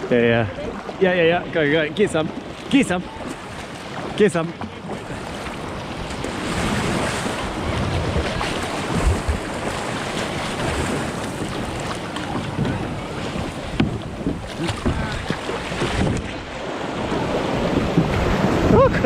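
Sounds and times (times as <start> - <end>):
sea waves breaking: 0.0 - 19.0
wind buffeting microphone: 4.8 - 19.0.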